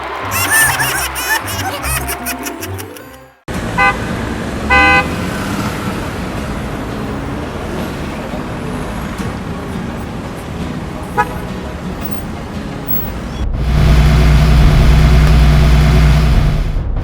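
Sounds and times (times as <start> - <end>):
music: 0.0 - 3.5, 6.0 - 17.0
motor and road rumble: 3.5 - 17.0
vehicle horn toots: 3.6 - 5.3, 11.1 - 11.5.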